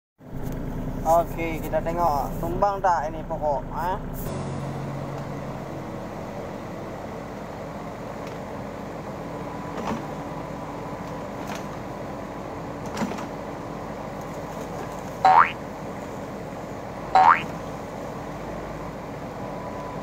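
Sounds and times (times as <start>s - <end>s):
diesel engine running: 0.2s - 20.0s.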